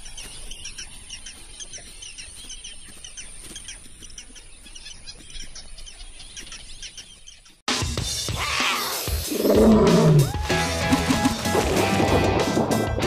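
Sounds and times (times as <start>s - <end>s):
birds chirping: 0.0s - 7.6s, 8.8s - 11.9s.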